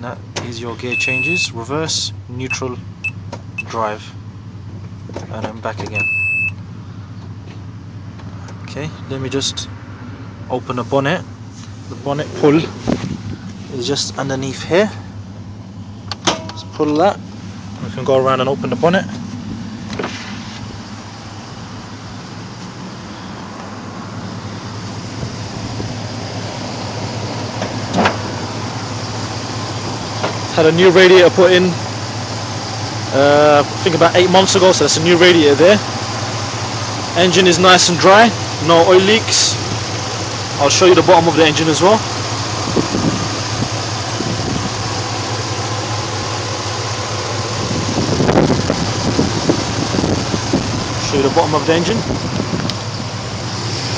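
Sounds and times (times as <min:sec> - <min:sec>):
pickup engine idling: 0:00.0 - 0:53.9
sharp knocks: 0:16.1 - 0:16.6.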